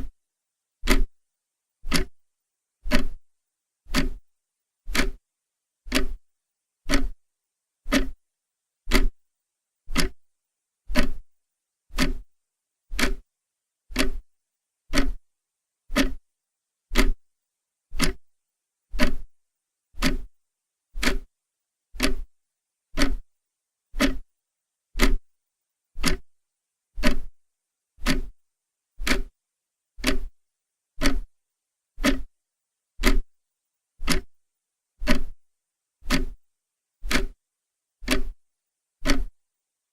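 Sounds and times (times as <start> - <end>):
clock ticking: 0.8 - 1.1, 1.9 - 2.2, 2.9 - 3.2, 3.9 - 4.2, 4.9 - 5.2, 5.9 - 6.2, 6.9 - 7.2, 7.9 - 8.2, 8.9 - 9.2, 9.9 - 10.2, 10.9 - 11.2, 11.9 - 12.2, 12.9 - 13.2, 13.9 - 14.2, 14.9 - 15.2, 15.9 - 16.2, 16.9 - 17.2, 18.0 - 18.2, 19.0 - 19.3, 20.0 - 20.3, 21.0 - 21.3, 22.0 - 22.3, 23.0 - 23.2, 24.0 - 24.2, 25.0 - 25.2, 26.0 - 26.3, 27.0 - 27.3, 28.0 - 28.4, 29.0 - 29.3, 30.0 - 30.4, 31.0 - 31.3, 32.0 - 32.3, 33.0 - 33.3, 34.0 - 34.4, 35.0 - 35.4, 36.0 - 36.4, 37.0 - 37.4, 38.0 - 38.4, 39.0 - 39.4.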